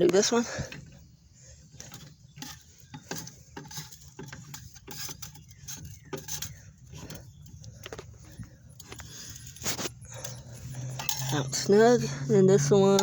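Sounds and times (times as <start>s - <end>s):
lug wrench clinking on nuts: 1.8s - 12.2s.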